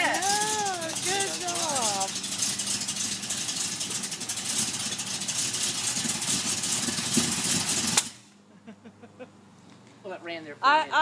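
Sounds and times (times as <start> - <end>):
car engine running: 0.0 - 8.3.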